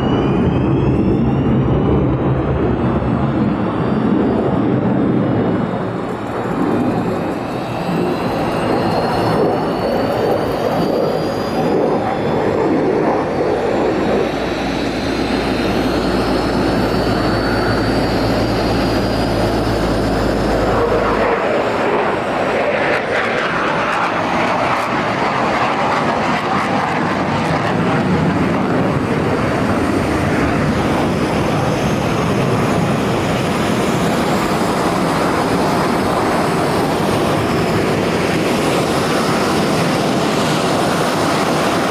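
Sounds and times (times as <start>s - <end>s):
jet engine roar: 0.0s - 41.9s
low rumble: 11.6s - 22.6s.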